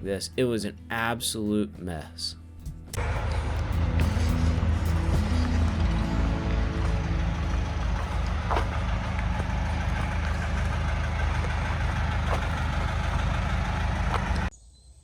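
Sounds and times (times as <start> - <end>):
backhoe engine running: 2.9 - 14.5.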